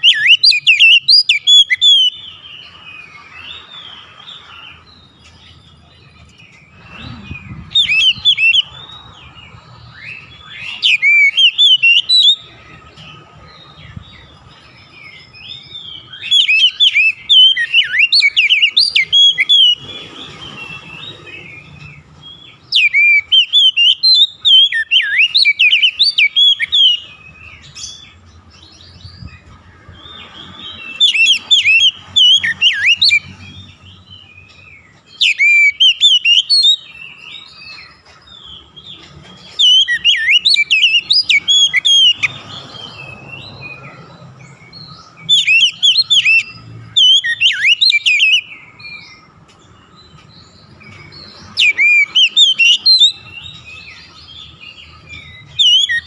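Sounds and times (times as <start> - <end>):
bird singing whistled phrases: 0.0 - 4.0, 6.6 - 9.1, 9.9 - 12.5, 14.6 - 19.8, 22.6 - 28.0, 30.6 - 33.4, 35.1 - 37.9, 39.5 - 44.0, 44.7 - 49.2, 50.8 - 56.0.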